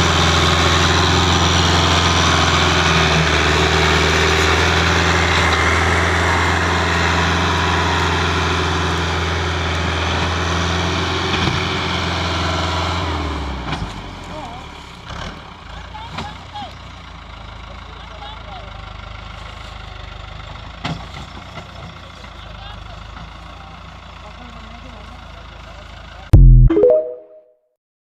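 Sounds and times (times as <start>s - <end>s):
tractor engine idling: 15.5s - 20.8s, 21.4s - 26.3s.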